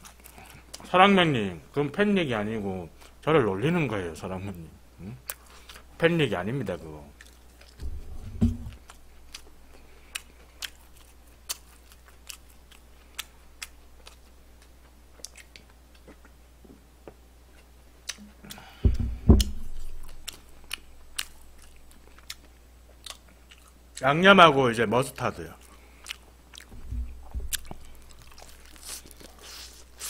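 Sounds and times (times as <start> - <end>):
chewing crispy fried chicken: 0.0 - 0.9, 7.1 - 7.8, 8.8 - 16.4, 20.0 - 24.1, 25.0 - 30.0
dull low thumps: 7.8 - 9.2, 18.8 - 21.6, 26.7 - 28.4.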